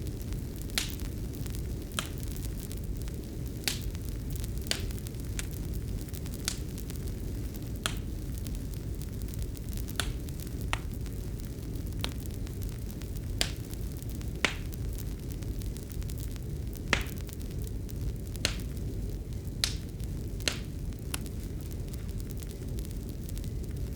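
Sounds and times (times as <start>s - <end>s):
fire crackling and popping: 0.0s - 23.9s
fire low rumble: 0.0s - 23.9s.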